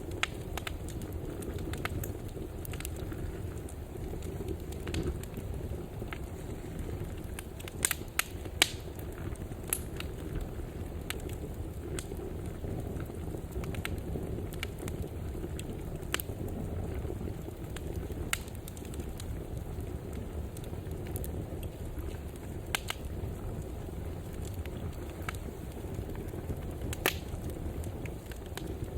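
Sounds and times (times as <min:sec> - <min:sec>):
low rumble of flame: 0:00.0 - 0:28.9
wood fire crackling and popping: 0:00.0 - 0:28.9.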